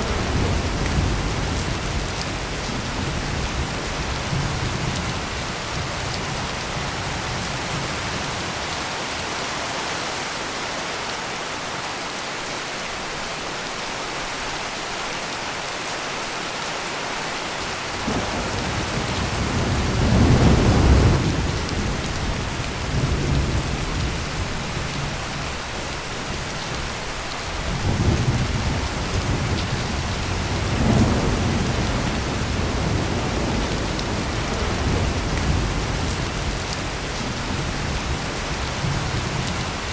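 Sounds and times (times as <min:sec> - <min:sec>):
thunder rumbling: 0:00.0 - 0:08.2, 0:18.0 - 0:25.4, 0:27.5 - 0:39.9
heavy rain: 0:00.0 - 0:39.9.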